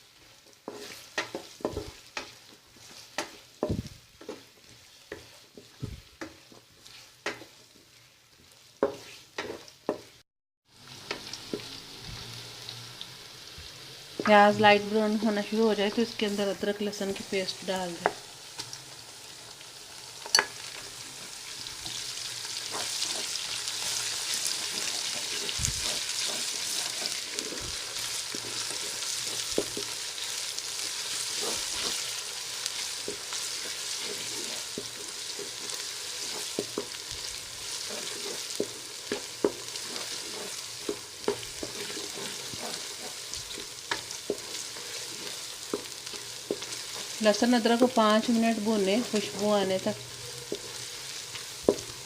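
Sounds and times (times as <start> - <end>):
onions sizzling in hot fat: 0.0 - 52.0
spoon clicking and scraping pan: 0.7 - 3.4, 6.2 - 7.6, 20.2 - 20.7, 37.6 - 47.2.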